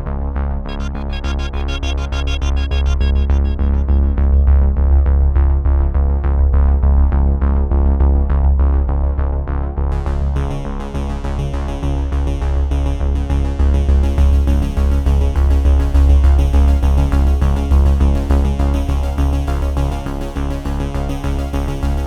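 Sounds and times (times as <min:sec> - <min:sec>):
electronic music with heavy bass: 0:00.7 - 0:06.0.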